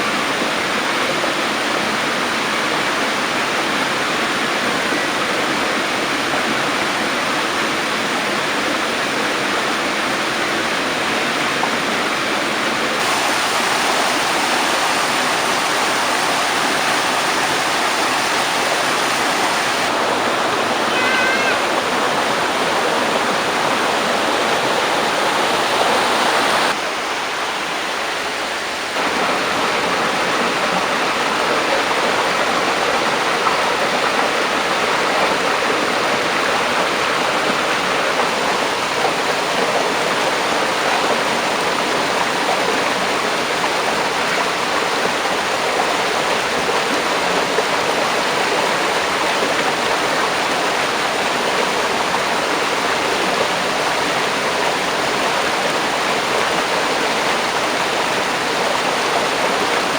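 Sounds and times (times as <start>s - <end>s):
waterfall rushing: 10.4s - 59.9s.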